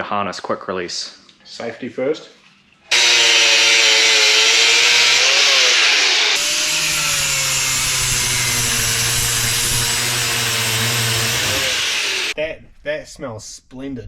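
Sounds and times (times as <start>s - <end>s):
power tool grinding: 2.9s - 12.4s.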